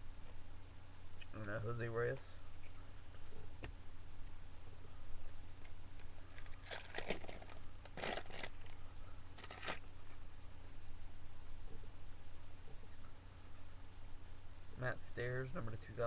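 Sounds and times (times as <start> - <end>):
foil wrapper tearing and crinkling: 6.0 - 8.8, 9.4 - 10.2.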